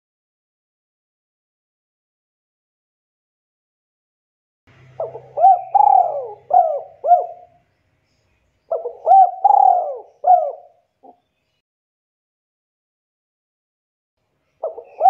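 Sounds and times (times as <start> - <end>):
dove cooing: 5.0 - 7.6, 8.7 - 11.2, 14.6 - 15.0.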